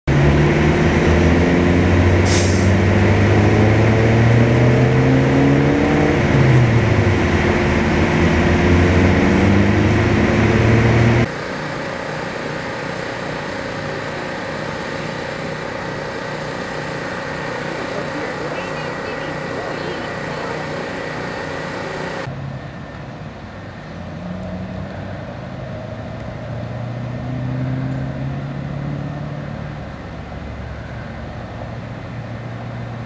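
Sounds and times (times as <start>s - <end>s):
heavy vehicle engine idling: 5.8s - 24.2s.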